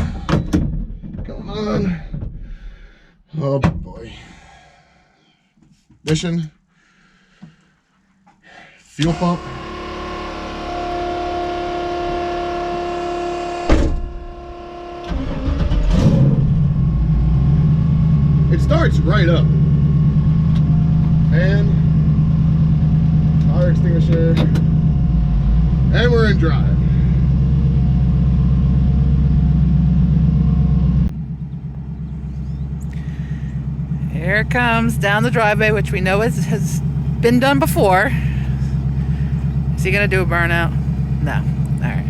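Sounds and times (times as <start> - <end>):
car engine starting and idling: 0.0 - 3.1, 8.9 - 42.0
fuel pump whining: 0.0 - 3.1, 9.0 - 42.0
loud clunk: 13.6 - 14.4.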